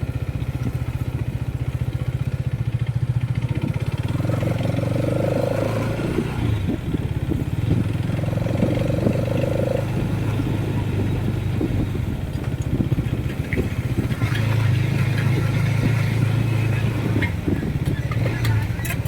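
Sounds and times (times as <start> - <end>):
motorcycle engine rumble: 0.0 - 19.0
wind noise on microphone: 3.4 - 19.0.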